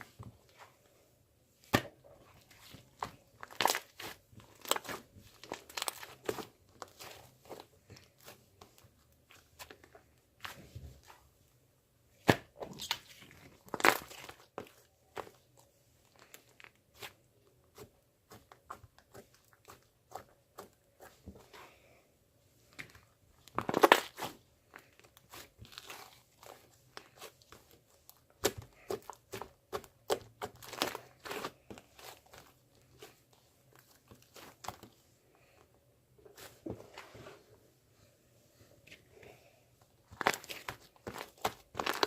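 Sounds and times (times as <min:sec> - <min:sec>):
crinkling and crunching handling: 0:00.0 - 0:11.5, 0:12.2 - 0:37.6, 0:38.8 - 0:42.0.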